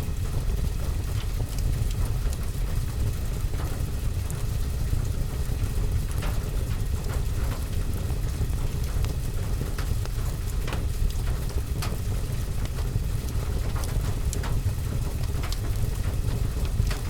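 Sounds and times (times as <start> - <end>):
rain drumming on a roof: 0.1 - 17.0
wood fire crackling and popping: 3.8 - 17.0.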